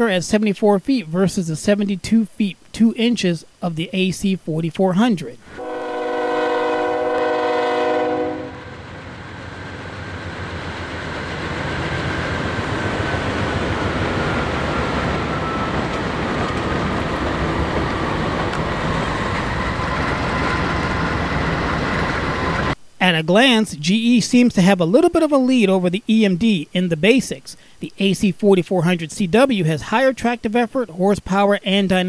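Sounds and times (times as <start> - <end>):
locomotive air horn blast: 5.5 - 8.7
train rolling past: 5.6 - 22.8.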